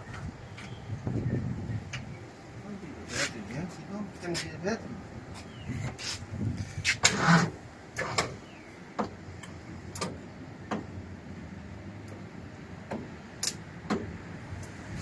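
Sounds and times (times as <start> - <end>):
sharp irregular clicks and knocks: 9.0 - 10.9, 12.9 - 14.8.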